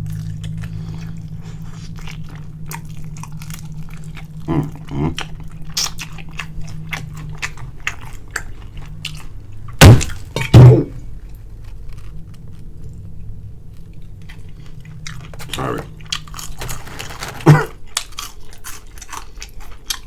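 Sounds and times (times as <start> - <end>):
low hum: 0.0 - 18.1
crunchy chewing and biting: 0.0 - 20.0
heavy thuds: 9.7 - 11.1.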